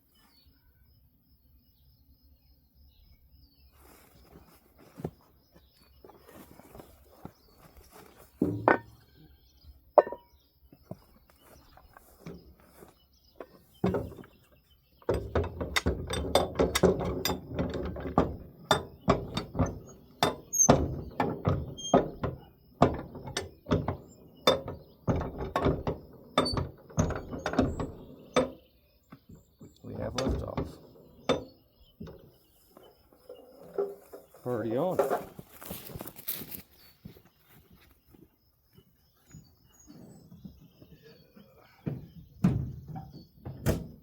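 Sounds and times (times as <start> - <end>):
knocks: 8.0 - 9.0, 10.0 - 10.3, 13.4 - 34.0, 41.8 - 44.0
jack ratchet clicking and clanking: 15.0 - 28.6.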